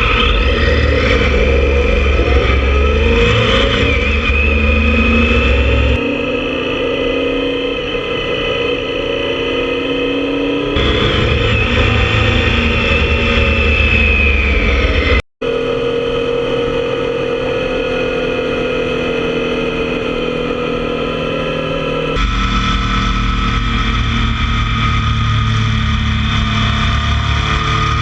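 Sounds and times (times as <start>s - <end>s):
rock music with distorted guitar: 0.0s - 15.2s, 22.2s - 28.0s
motorcycle engine running: 0.0s - 28.0s
road and wind noise: 0.0s - 28.0s.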